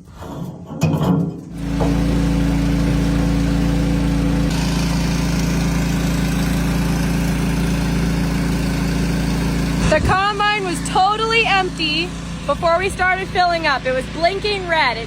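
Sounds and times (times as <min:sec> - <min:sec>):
diesel engine idling: 0:01.6 - 0:15.0.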